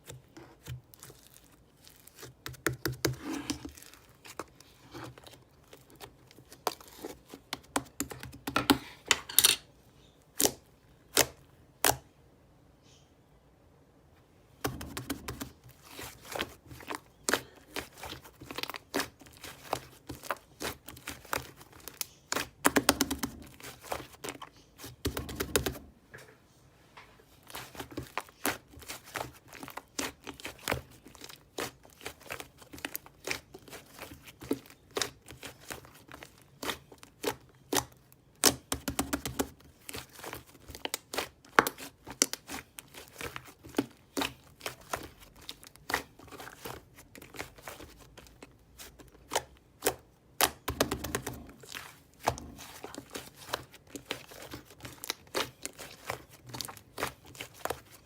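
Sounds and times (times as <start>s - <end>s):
slime kneaded by hand: 0.0s - 9.1s, 14.5s - 26.0s, 27.2s - 58.0s.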